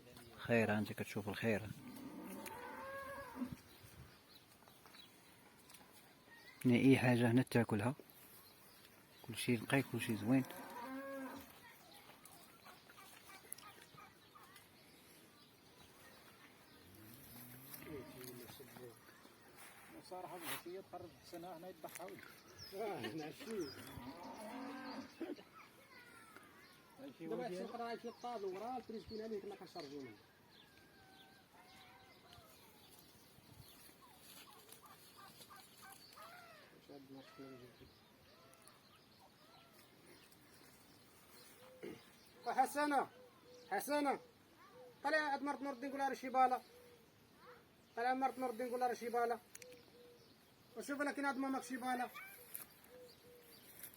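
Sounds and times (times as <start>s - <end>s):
faint bird calls: 33.7s - 45.1s, 49.1s - 50.9s, 52.0s - 53.9s.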